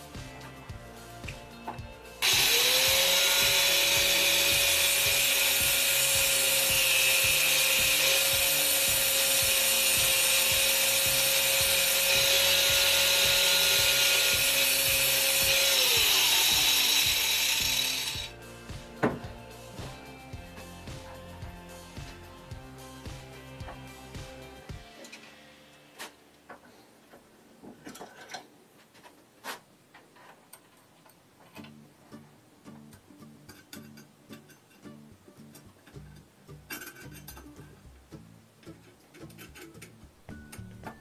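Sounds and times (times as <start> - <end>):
angle grinder whining: 2.2 - 18.4.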